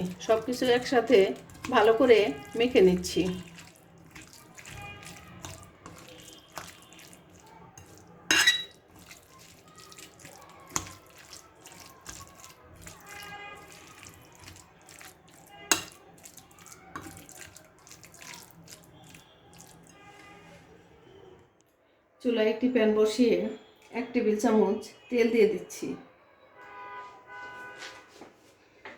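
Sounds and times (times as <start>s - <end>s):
wet squelching of marinade: 0.0s - 20.9s.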